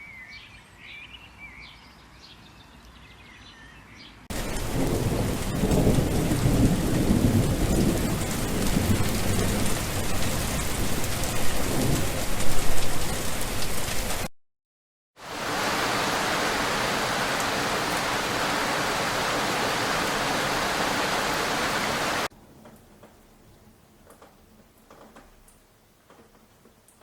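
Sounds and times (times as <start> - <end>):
faint birds chirping: 0.0 - 4.3
deep rolling thunder: 4.3 - 13.4
heavy rain: 4.3 - 14.3, 15.2 - 22.3.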